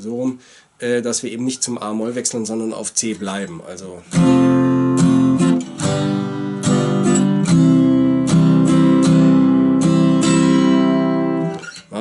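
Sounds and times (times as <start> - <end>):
acoustic guitar strumming chords: 4.1 - 12.0.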